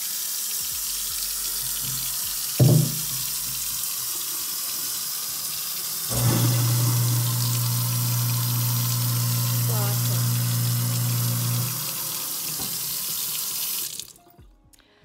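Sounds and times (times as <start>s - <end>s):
faucet running into sink: 0.0s - 14.2s
thump: 2.6s - 3.2s
garbage disposal motor hum: 6.1s - 12.8s.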